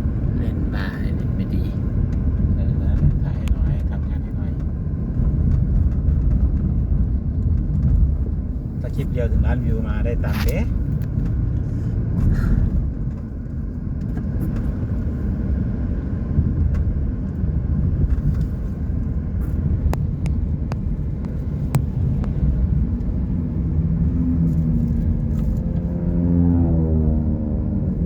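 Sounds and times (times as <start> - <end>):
car road and engine rumble: 0.0 - 28.0
engine note rising and falling: 21.6 - 28.0.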